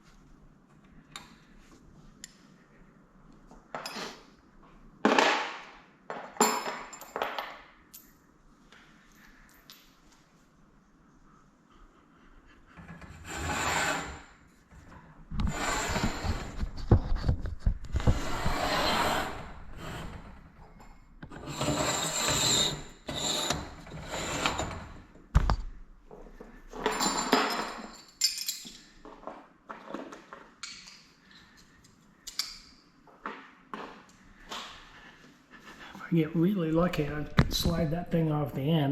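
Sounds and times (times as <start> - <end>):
metal scraping and rubbing: 12.8 - 14.4, 18.0 - 20.4, 21.3 - 25.0.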